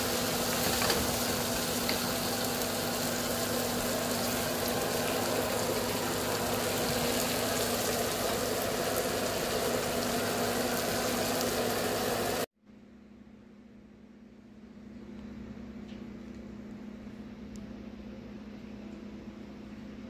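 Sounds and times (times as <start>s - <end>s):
stir-fry sizzling in a wok: 0.0s - 12.5s.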